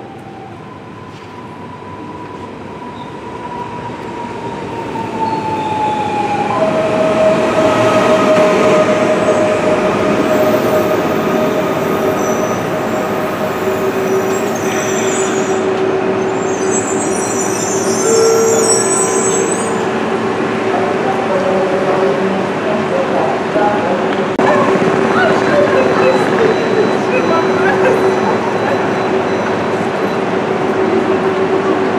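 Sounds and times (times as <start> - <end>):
train rumbling: 0.0 - 31.9
train whine: 0.0 - 31.9
faint high squealing: 14.0 - 19.9.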